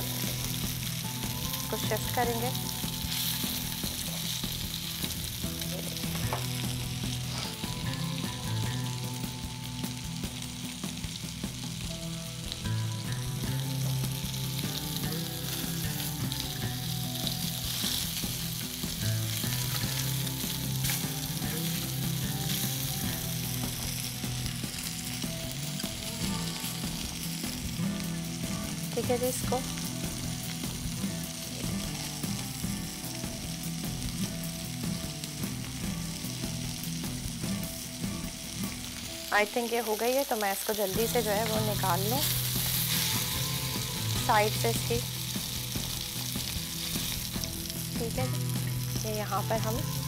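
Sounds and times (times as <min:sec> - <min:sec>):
meat sizzling in oil: 0:00.0 - 0:50.0.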